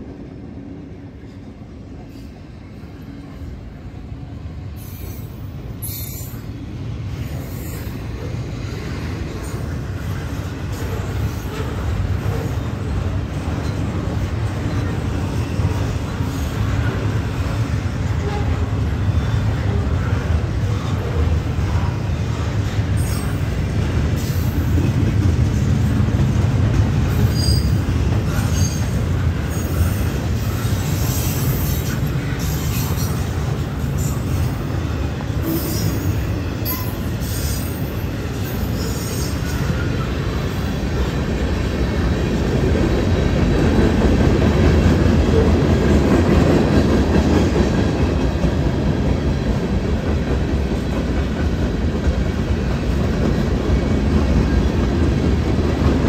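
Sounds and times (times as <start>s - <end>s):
train wheels rumbling on rail: 0.0s - 56.0s
high wheel squeals: 27.2s - 27.8s.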